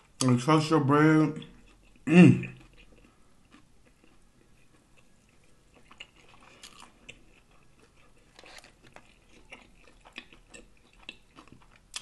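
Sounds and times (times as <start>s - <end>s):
person chewing food: 1.4s - 12.0s.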